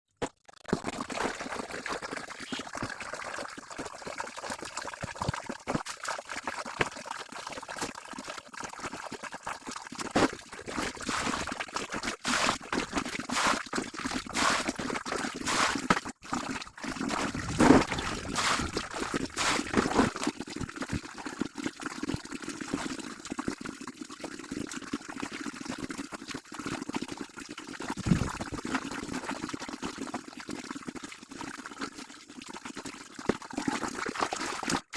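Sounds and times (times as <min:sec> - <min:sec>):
water sloshing and pouring: 0:09.7 - 0:23.1, 0:27.9 - 0:29.9, 0:33.1 - 0:34.9
water splashes: 0:10.1 - 0:20.7, 0:27.9 - 0:28.8.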